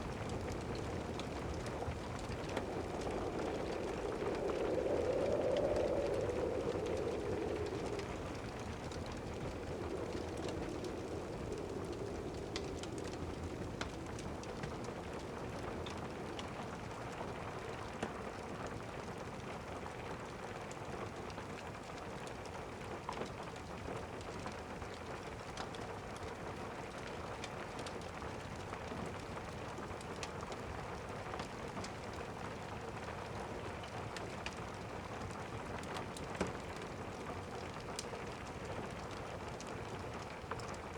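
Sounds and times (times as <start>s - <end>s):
rain pattering: 0.0s - 40.9s
distant thunder rumble: 0.1s - 15.7s.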